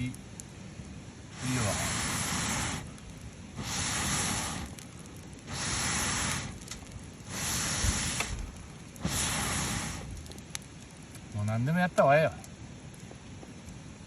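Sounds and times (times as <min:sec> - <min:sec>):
wood fire crackling: 0:00.0 - 0:14.0
hissing rushes of air: 0:01.2 - 0:10.7.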